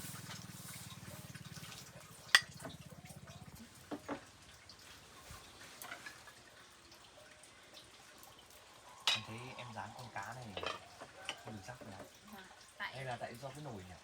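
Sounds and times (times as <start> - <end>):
dish clinking: 10.5 - 11.5.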